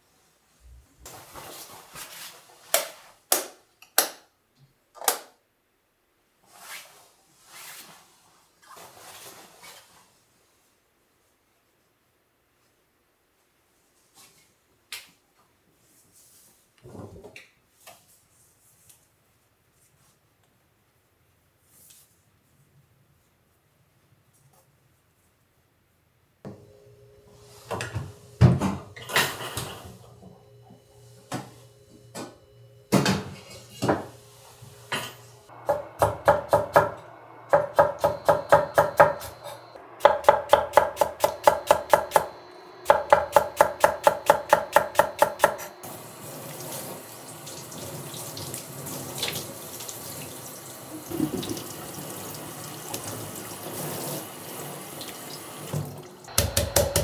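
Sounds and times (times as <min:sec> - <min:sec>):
kitchen knocks and clatters: 0:27.7 - 0:30.4, 0:31.3 - 0:34.2, 0:34.8 - 0:45.7, 0:56.3 - 0:57.0
knife chopping on cutting board: 0:35.7 - 0:37.0, 0:37.6 - 0:45.7, 0:56.3 - 0:57.0
tap running into sink: 0:40.0 - 0:45.7, 0:51.0 - 0:52.0, 0:55.0 - 0:57.0.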